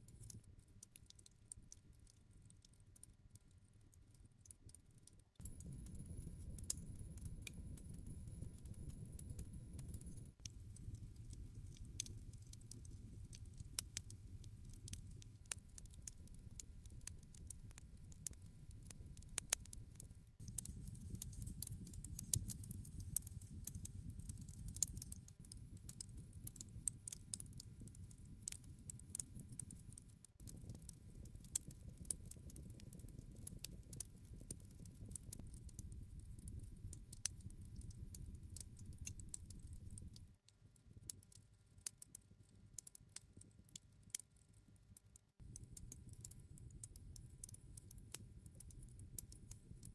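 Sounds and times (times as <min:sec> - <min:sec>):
campfire crackling: 0:09.8 - 0:17.5, 0:20.5 - 0:40.2.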